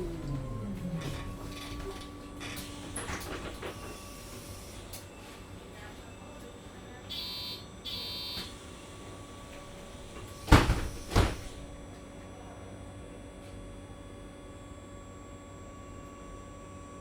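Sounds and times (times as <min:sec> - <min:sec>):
bus low hum: 0:00.0 - 0:06.6
bus door mechanism bursts: 0:10.4 - 0:11.6.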